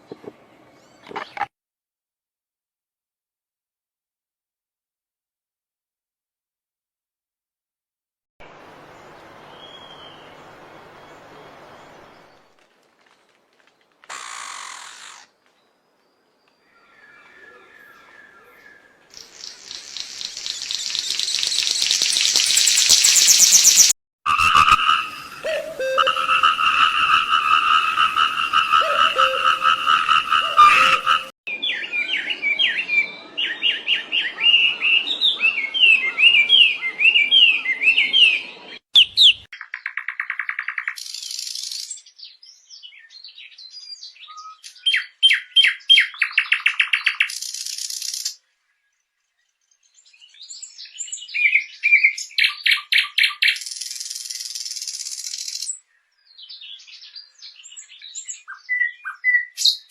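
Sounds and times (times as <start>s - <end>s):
songbird chirps and trills: 14.2s - 23.9s, 24.8s - 59.9s
steady pulsed bird trill: 19.2s - 32.2s.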